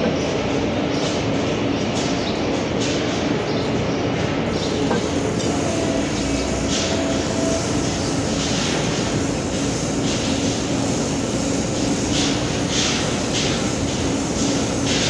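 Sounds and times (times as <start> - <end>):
machine drone with hum: 0.0 - 15.0
machine hiss: 4.5 - 15.0.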